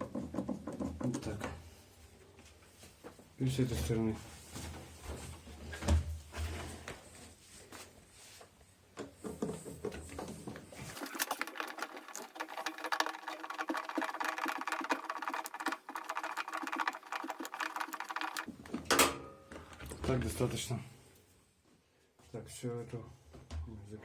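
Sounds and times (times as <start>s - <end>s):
screw tightening rapid clicks: 10.9s - 18.5s.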